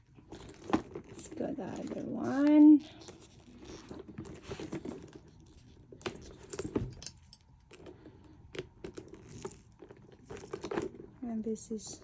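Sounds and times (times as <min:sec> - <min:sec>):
handbag rustling: 0:00.0 - 0:12.0
metal hardware clicks and clinks: 0:06.0 - 0:07.9.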